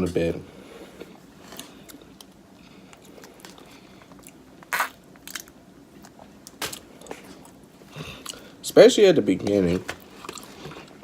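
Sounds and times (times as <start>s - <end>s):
biting and chewing food: 1.0s - 8.6s, 9.4s - 11.0s
sharp crunches: 4.6s - 5.5s.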